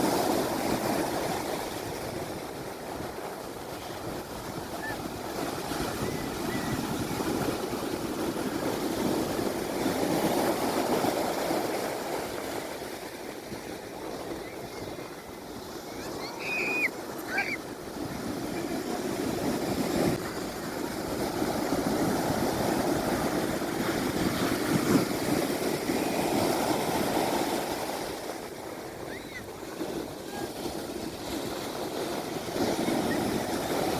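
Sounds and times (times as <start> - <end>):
sea waves washing onto shore: 0.0 - 33.9.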